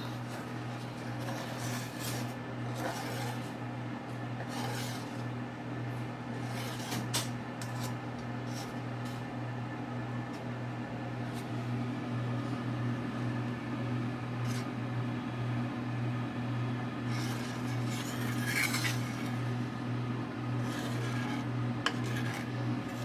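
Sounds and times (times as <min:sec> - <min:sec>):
steady low hum: 0:00.0 - 0:23.0
spoon scraping a pan: 0:00.1 - 0:03.6, 0:04.4 - 0:05.3, 0:06.4 - 0:09.3, 0:17.1 - 0:19.4, 0:20.6 - 0:23.0.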